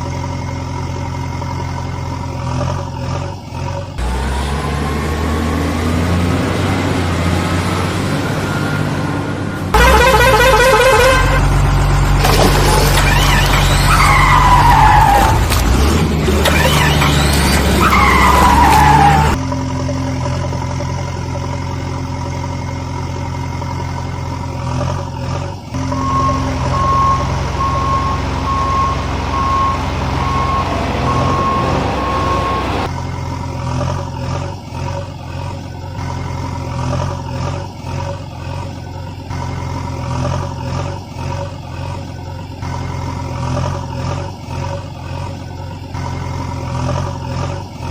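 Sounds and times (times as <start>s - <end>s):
cartoon vehicle engine: 0.0s - 47.9s
falling squeals: 12.6s - 19.4s, 25.8s - 33.0s
regular beeping: 25.8s - 32.9s.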